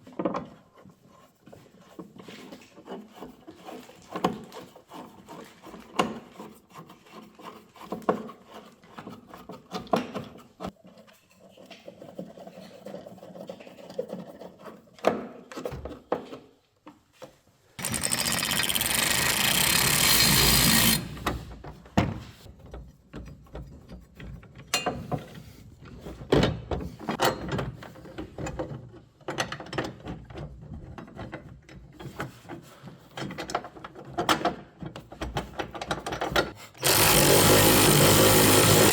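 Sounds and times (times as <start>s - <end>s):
power drill running: 17.8s - 21.5s, 36.8s - 38.9s.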